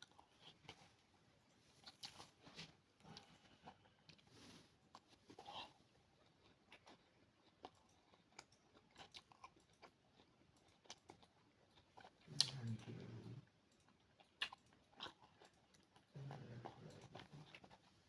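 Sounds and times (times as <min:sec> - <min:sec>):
person chewing: 0:04.9 - 0:17.9.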